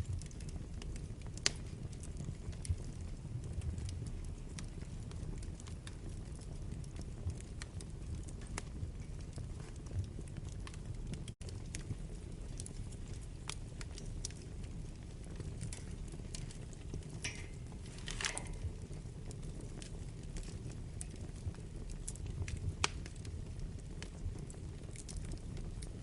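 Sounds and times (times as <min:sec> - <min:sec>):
fire crackles and pops: 0:00.0 - 0:26.0
wood fire rumbling: 0:00.0 - 0:26.0.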